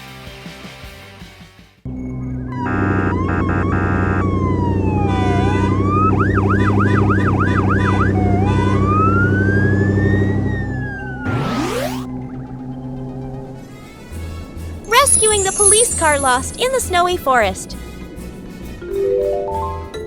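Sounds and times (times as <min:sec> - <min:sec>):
engine hum: 0:01.9 - 0:14.9
horn honks: 0:02.6 - 0:04.4, 0:05.0 - 0:09.6
cartoon siren wailing and yelping: 0:02.6 - 0:12.1, 0:14.9 - 0:16.6
rising whoosh: 0:11.0 - 0:12.1.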